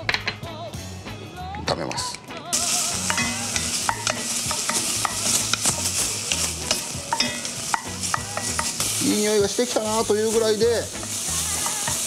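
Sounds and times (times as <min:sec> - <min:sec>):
food sizzling in hot oil: 0:02.5 - 0:12.0.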